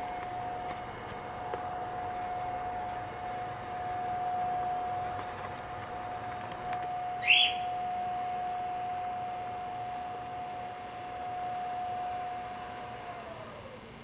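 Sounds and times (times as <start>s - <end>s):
steady high-pitched hum: 0.0s - 14.0s
cockatiel chirp: 7.2s - 7.7s.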